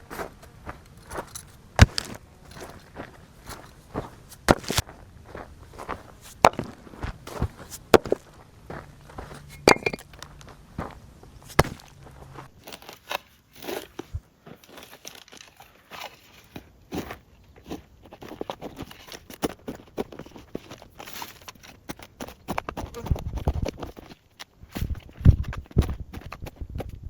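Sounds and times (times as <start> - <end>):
footsteps on dry ground: 0.0 - 12.7.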